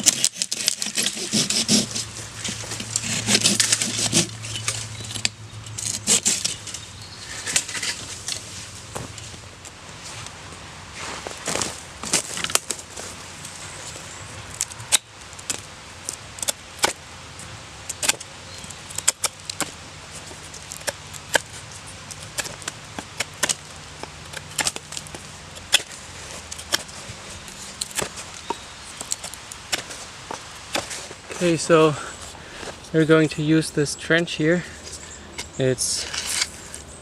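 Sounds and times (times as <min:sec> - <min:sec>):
blade chopping wood: 0:00.0 - 0:06.8, 0:18.9 - 0:27.0, 0:27.6 - 0:31.4.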